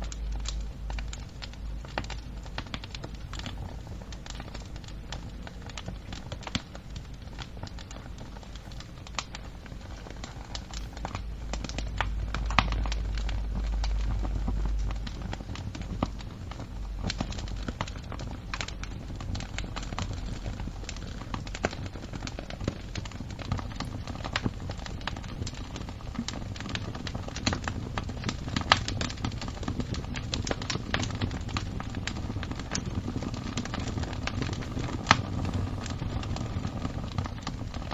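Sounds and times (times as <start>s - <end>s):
low rumble: 0.0s - 22.9s, 31.4s - 37.9s
wood fire crackling: 0.0s - 37.9s.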